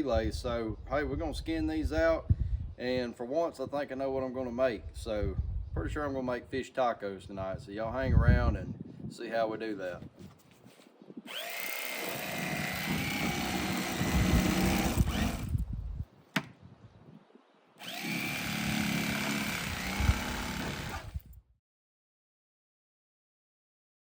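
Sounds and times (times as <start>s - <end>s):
power tool motor running: 11.3s - 15.6s, 17.8s - 21.2s.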